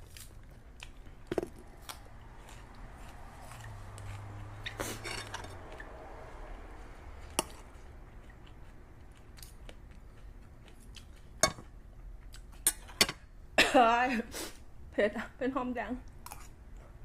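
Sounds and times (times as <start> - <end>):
quiet chewing: 0.0 - 12.6.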